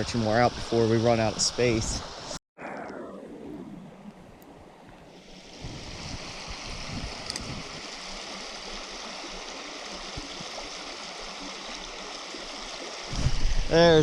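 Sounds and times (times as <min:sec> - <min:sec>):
creek water rushing: 0:00.0 - 0:02.4, 0:05.1 - 0:14.0.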